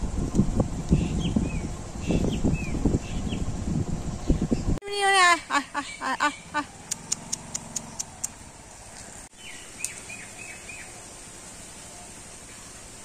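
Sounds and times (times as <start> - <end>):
small birds calling: 0.9 - 3.5, 4.1 - 12.7.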